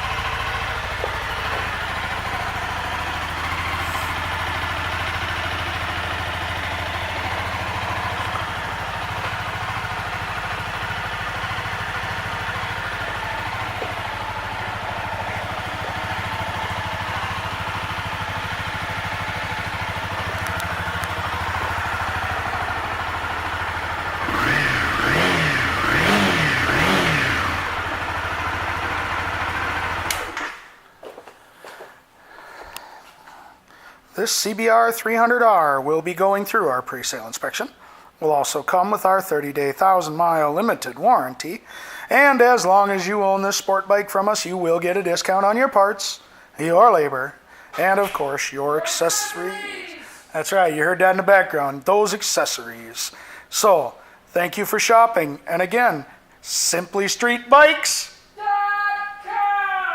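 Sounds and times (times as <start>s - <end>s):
motorcycle engine idling and revving: 0.0s - 30.7s.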